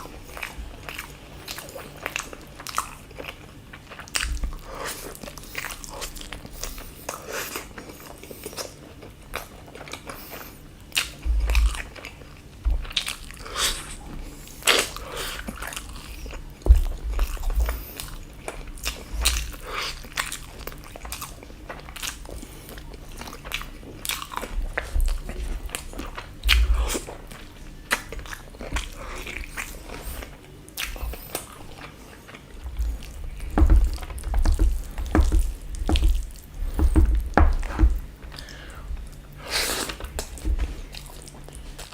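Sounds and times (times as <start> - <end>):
person chewing food: 0.0 - 41.9
low thumps: 32.6 - 39.1.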